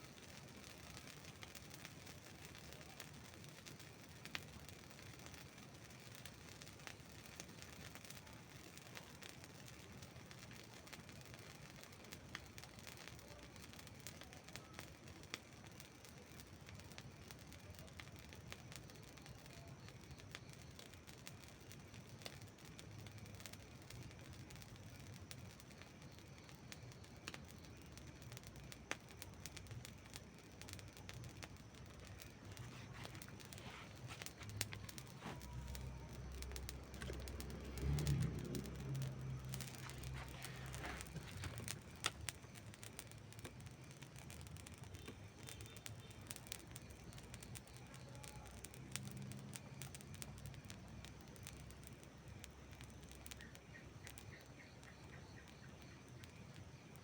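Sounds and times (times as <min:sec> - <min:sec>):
campfire crackling and popping: 0:00.0 - 0:57.0
low rumble: 0:32.5 - 0:42.1.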